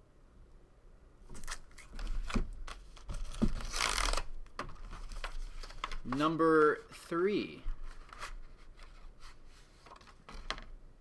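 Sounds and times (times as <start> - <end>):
packaging crinkling and tearing: 1.4 - 4.3.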